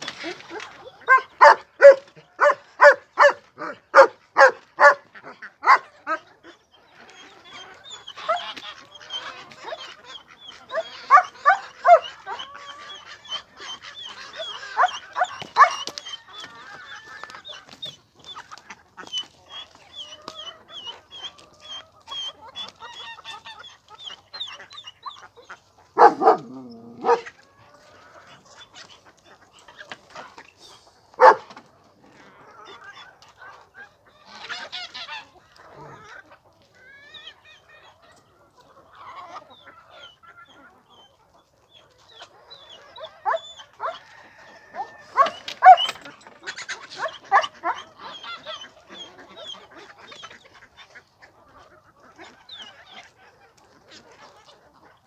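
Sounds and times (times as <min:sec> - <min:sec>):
chickens calling: 0:00.0 - 0:55.0
dog barking: 0:01.0 - 0:06.2, 0:10.7 - 0:12.5, 0:14.8 - 0:15.9, 0:26.0 - 0:27.3, 0:31.2 - 0:31.5, 0:43.0 - 0:44.1, 0:44.7 - 0:46.0, 0:47.0 - 0:47.9.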